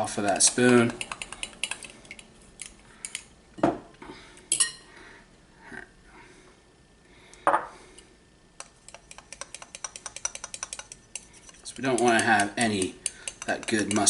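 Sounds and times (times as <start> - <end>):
spoon knocking against mixing bowl: 8.6 - 11.0, 11.9 - 14.0.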